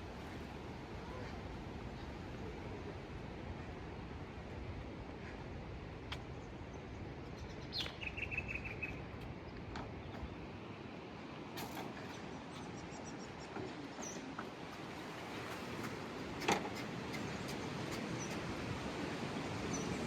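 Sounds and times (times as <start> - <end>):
bird chirping: 7.4 - 9.0.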